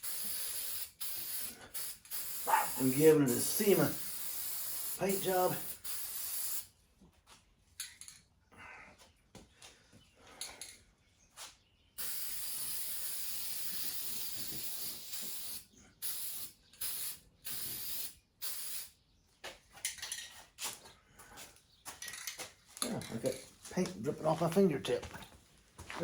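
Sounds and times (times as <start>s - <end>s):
spray paint can hissing: 0.0s - 6.7s, 12.0s - 19.0s.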